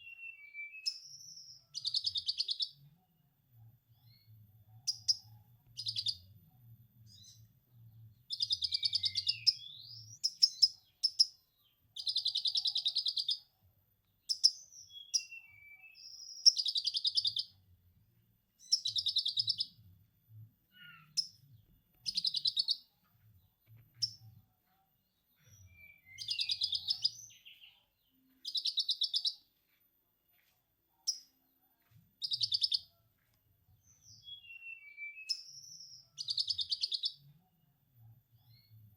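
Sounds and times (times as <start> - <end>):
songbird chattering: 22.0 - 22.8, 26.1 - 27.6.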